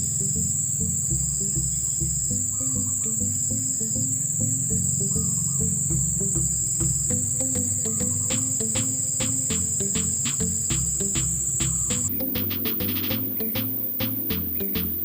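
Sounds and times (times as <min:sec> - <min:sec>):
insects trilling: 0:00.0 - 0:15.0
background music with beat: 0:05.9 - 0:15.0.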